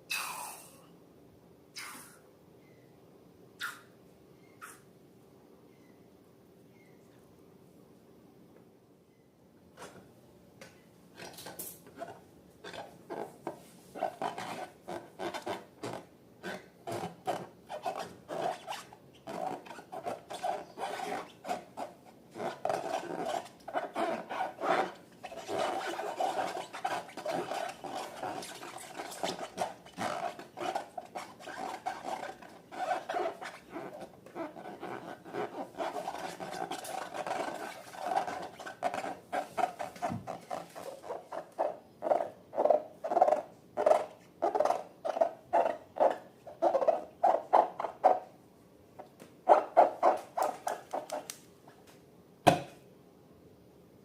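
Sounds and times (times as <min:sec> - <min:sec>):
slime squelching and scraping: 0:19.4 - 0:42.3.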